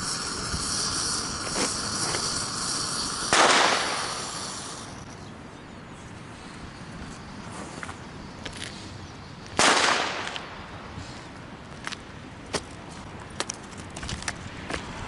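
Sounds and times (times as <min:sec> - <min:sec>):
sharp firecracker cracks: 0:01.0 - 0:04.9, 0:09.6 - 0:10.6
loud firecracker bang: 0:03.3 - 0:04.4.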